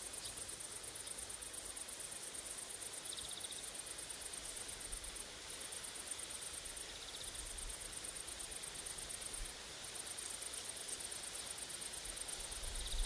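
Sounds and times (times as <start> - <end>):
low insect trill: 0.1 - 5.1, 10.1 - 13.0
insects chirring: 12.3 - 13.0.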